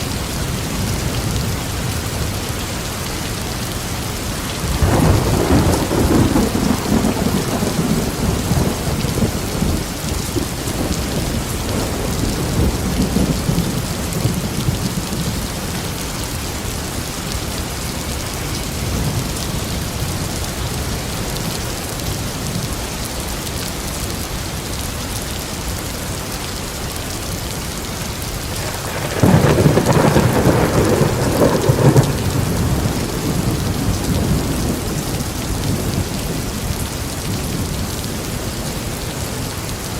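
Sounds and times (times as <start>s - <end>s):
heavy rain: 0.0s - 39.9s
rolling thunder: 4.6s - 16.1s, 28.6s - 38.0s.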